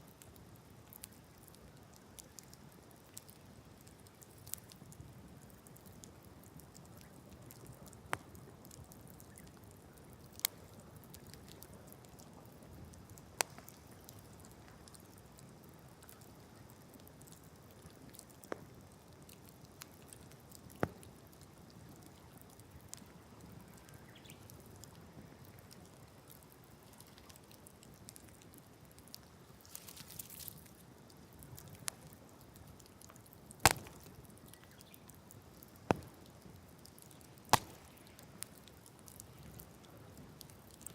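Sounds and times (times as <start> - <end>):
campfire pops and cracks: 0.1 - 40.9
fire hissing: 33.4 - 40.8.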